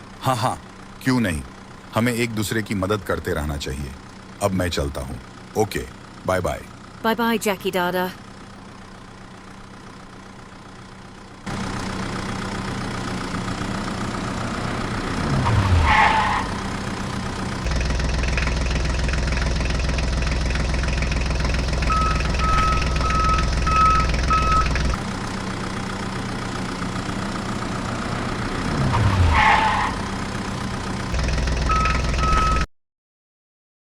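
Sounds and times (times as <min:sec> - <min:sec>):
cartoon engine running: 0:17.6 - 0:25.0, 0:31.1 - 0:32.7
short beeps: 0:21.4 - 0:25.0, 0:31.6 - 0:32.7.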